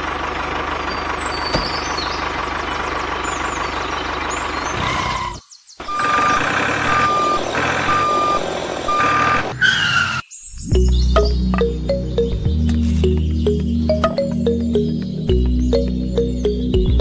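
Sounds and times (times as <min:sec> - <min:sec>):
truck engine running: 0:00.0 - 0:09.6, 0:10.8 - 0:17.0
reversing alarm beeping: 0:05.8 - 0:09.6.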